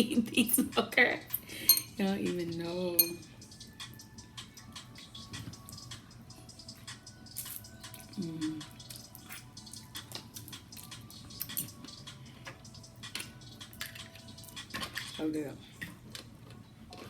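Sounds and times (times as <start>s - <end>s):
wet chewing and lip smacks: 6.8s - 15.0s
person humming mm: 8.2s - 8.8s.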